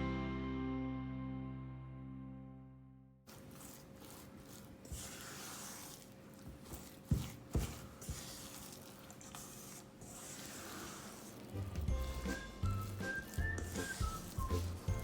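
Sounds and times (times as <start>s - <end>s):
spatula scraping dough in bowl: 3.3s - 15.0s.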